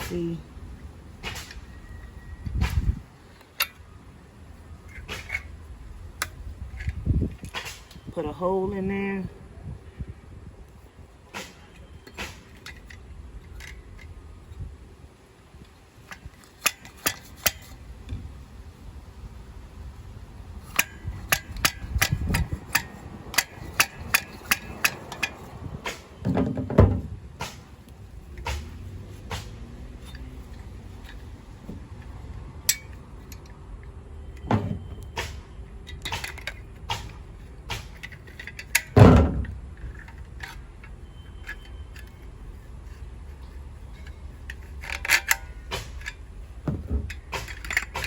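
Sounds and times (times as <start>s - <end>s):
tools clicking and tapping plastic: 11.4s - 14.2s, 15.6s - 18.2s, 20.6s - 48.0s.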